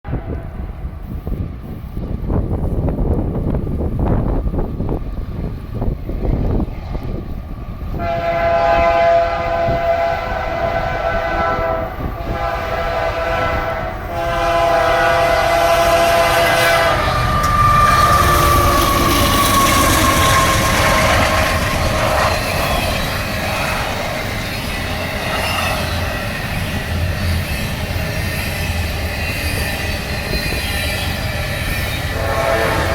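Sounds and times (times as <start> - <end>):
freight train rumble and clatter: 0.0 - 32.9
locomotive air horn blasts: 8.0 - 23.8, 32.1 - 32.9
high tone sliding down: 16.8 - 24.1.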